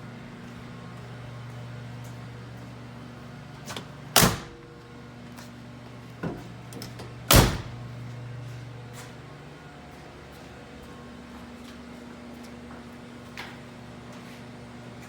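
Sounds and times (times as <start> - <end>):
steady low hum: 0.0 - 15.0
heavy door thumps: 4.2 - 4.6, 7.3 - 7.8.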